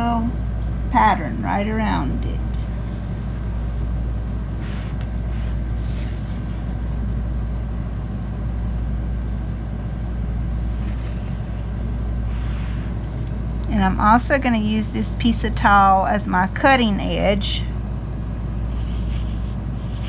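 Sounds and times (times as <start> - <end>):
steady low hum: 0.0 - 20.0
felt-tip marker scratching: 2.5 - 4.0, 4.7 - 7.2, 10.6 - 12.8, 18.7 - 20.0.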